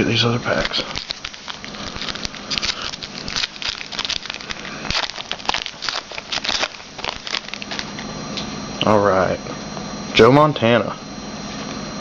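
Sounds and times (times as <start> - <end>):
card pack wrapper crinkling: 0.5 - 8.0.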